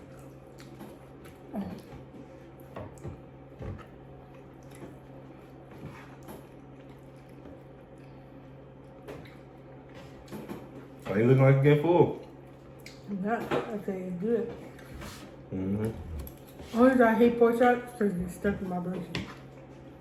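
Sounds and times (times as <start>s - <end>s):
people chewing food: 0.0s - 13.3s, 14.4s - 17.0s
steady low hum: 0.0s - 20.0s.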